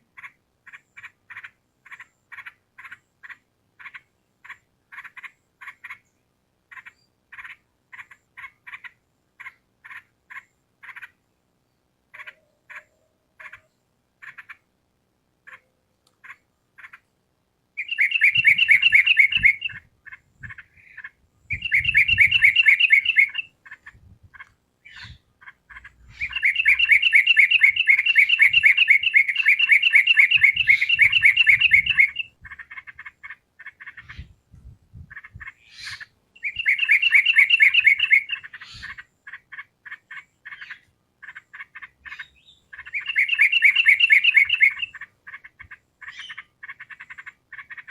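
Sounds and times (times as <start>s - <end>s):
bird chattering song: 0.1s - 14.7s, 15.4s - 17.1s, 17.8s - 47.9s
bird call notes: 17.8s - 19.9s, 20.8s - 23.5s, 25.8s - 32.3s, 35.8s - 39.0s, 42.1s - 45.0s.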